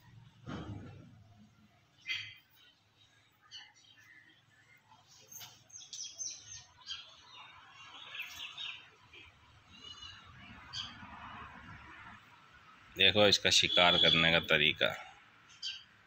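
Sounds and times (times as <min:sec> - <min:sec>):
birds chirping: 0:01.5 - 0:11.1, 0:13.0 - 0:16.0
bird trill: 0:02.0 - 0:02.7, 0:05.3 - 0:11.0, 0:15.5 - 0:16.0.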